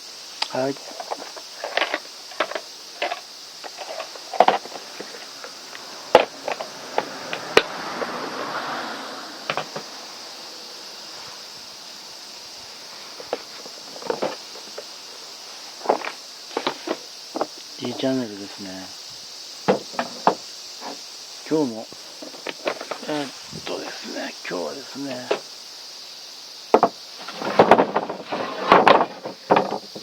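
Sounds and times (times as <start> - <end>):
steady high hiss: 0.0 - 30.0
objects clicking and knocking: 0.4 - 7.7, 9.5 - 9.9
soft rush: 3.7 - 17.0, 22.8 - 25.4.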